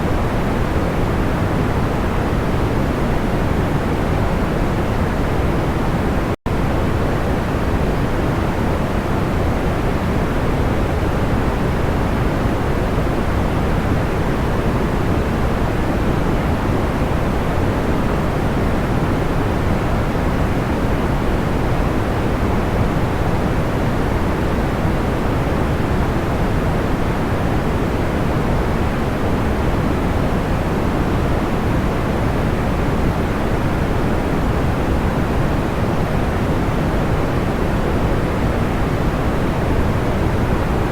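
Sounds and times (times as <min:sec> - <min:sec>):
steady pink noise hiss: 0:00.0 - 0:40.9.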